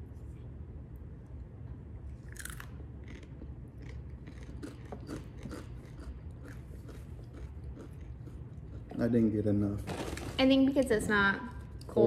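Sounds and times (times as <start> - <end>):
chewing crunchy snack: 2.1 - 9.1.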